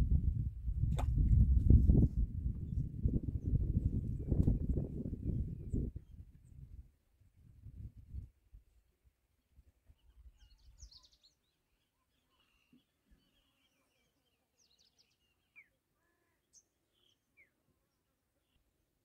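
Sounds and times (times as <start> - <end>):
faint bird chirps and calls: 9.8 - 18.8.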